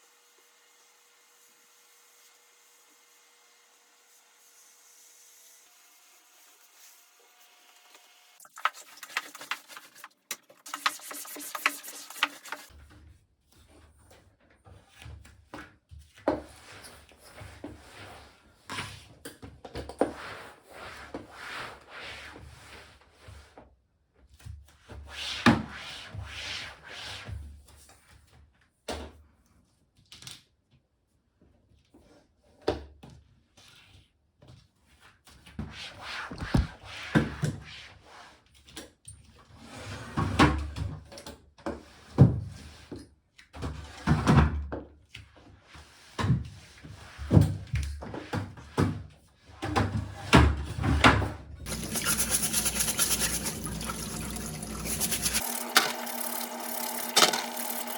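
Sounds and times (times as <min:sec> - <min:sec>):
rubbing and scraping: 0:08.4 - 0:12.7, 0:36.2 - 0:36.8, 0:51.7 - 0:57.9.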